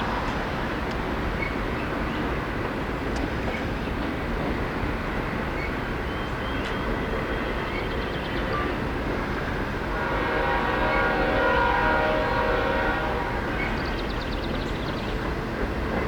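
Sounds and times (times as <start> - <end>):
train rumbling past: 0.0 - 16.0
locomotive air horn: 9.9 - 13.6.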